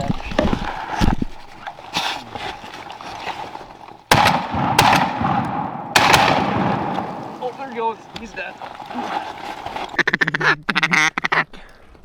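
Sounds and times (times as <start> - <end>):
shotgun blasts with echo: 4.1 - 8.4.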